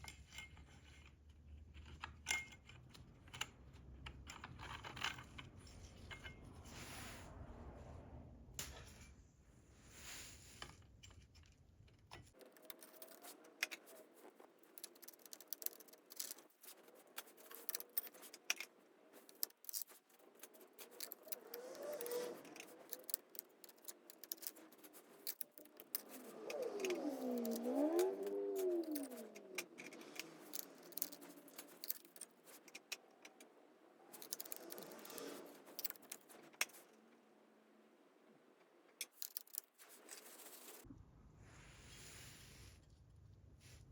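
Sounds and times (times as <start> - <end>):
metal tools clinking and rattling: 12.2 - 33.5, 34.1 - 36.9, 39.0 - 40.8.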